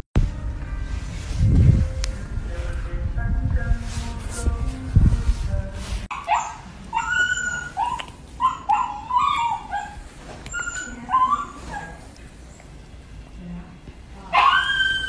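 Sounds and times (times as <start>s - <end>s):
dog whining and yipping: 6.1s - 12.1s, 14.4s - 15.0s.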